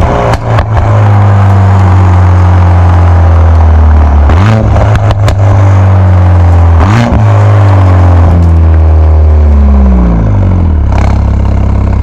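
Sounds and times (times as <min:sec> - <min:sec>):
exhaust pop: 0:00.0 - 0:12.0.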